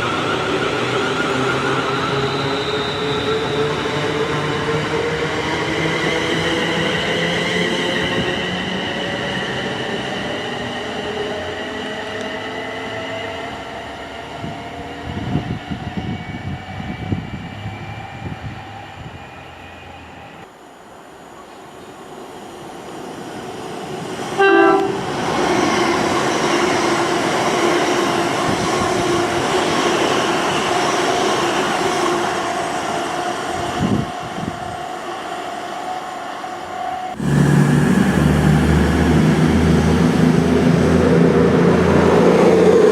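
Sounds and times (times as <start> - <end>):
train rumbling past: 22.4 - 42.9
train horn blast: 24.4 - 25.2
train motor whine: 24.4 - 25.2
low engine note: 37.2 - 42.8.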